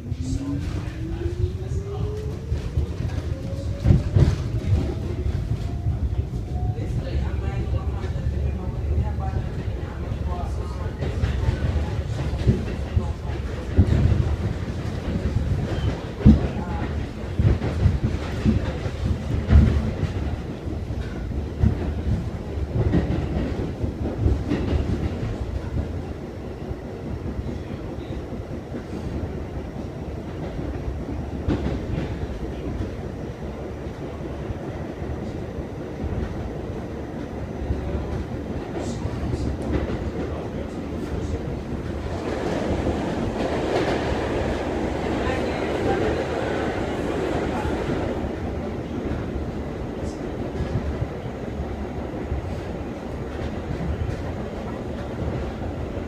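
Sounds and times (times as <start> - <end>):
subway car wheels clacking on rails: 0.0 - 56.0
train rumble: 0.0 - 56.0.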